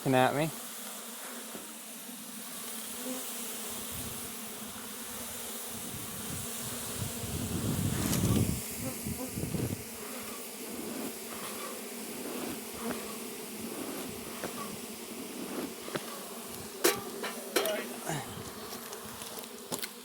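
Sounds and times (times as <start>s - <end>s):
bees buzzing: 0.0s - 20.0s.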